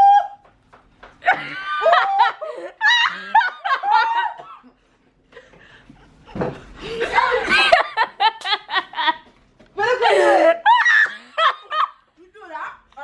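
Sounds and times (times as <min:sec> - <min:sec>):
high-pitched laughter: 0:01.2 - 0:04.4.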